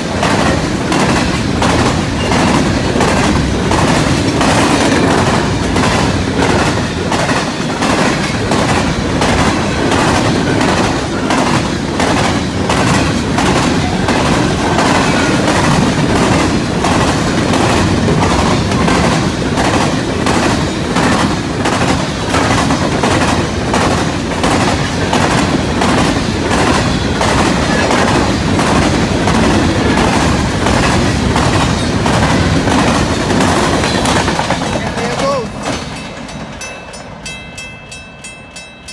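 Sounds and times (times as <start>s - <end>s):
train wheels clacking on rails: 0.0s - 38.9s.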